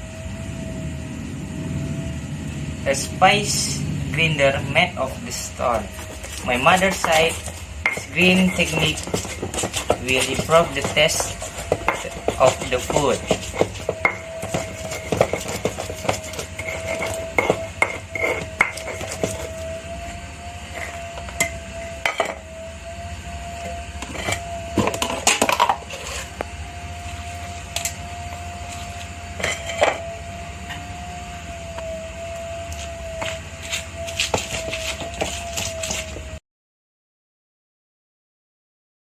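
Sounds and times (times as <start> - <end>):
faint steady hum: 0.0 - 36.4
stone pestle knocking and grinding: 5.6 - 19.8, 20.7 - 22.5, 23.6 - 26.4, 28.8 - 30.0, 33.1 - 36.2.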